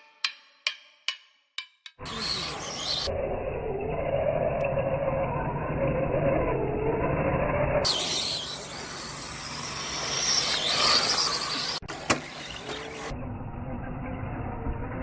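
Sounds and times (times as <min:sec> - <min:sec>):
rc car motor whine: 0:02.0 - 0:15.0.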